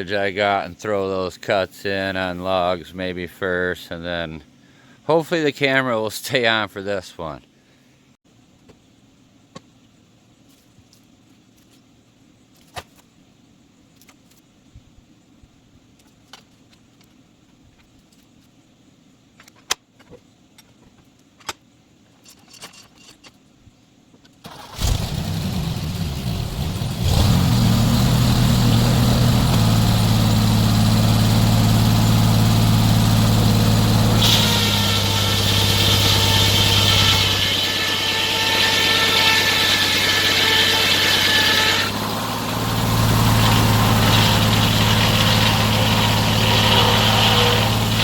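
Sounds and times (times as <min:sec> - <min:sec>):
sawmill engine running: 0:24.5 - 0:48.0.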